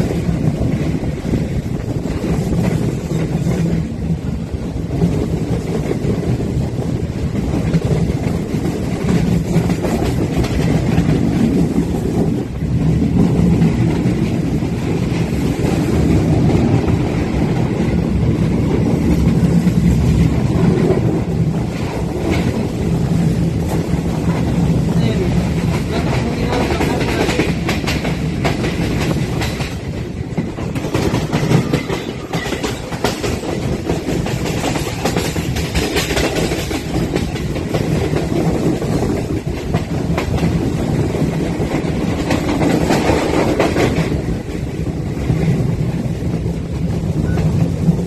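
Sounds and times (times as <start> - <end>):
train wheels rushing on rail: 0.0 - 48.0
wind on microphone: 0.0 - 48.0.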